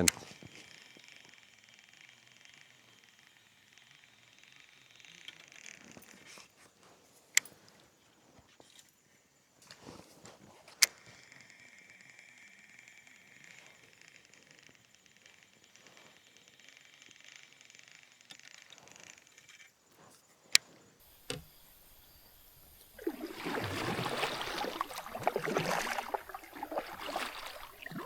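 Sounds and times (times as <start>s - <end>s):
fishing reel whirring: 0.0s - 6.0s, 11.0s - 19.7s, 21.0s - 28.0s
sharp clicks: 21.1s - 28.0s.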